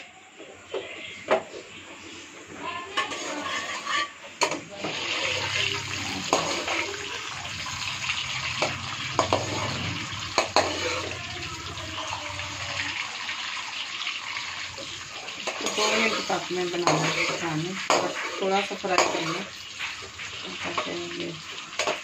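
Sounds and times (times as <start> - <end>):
eggs frying in hot oil: 1.3 - 22.0
metal spoon clinking pan: 10.3 - 11.2, 15.4 - 19.5.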